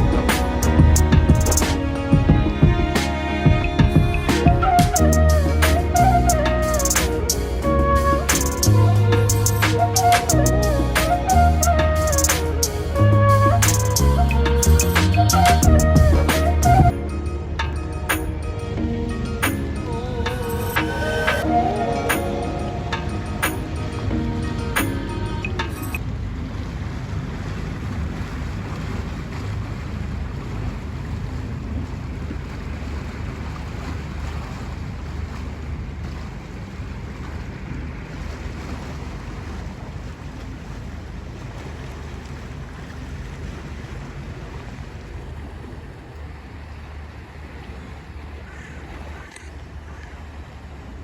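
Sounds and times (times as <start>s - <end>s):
low rumble: 0.0s - 28.4s
wind buffeting microphone: 0.0s - 51.0s.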